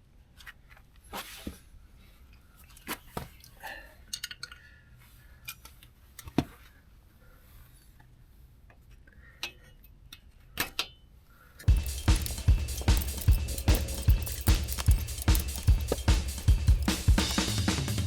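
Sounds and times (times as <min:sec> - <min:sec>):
background music with drum beat: 0:11.7 - 0:18.0
hand tools clinking on metal: 0:11.7 - 0:18.0.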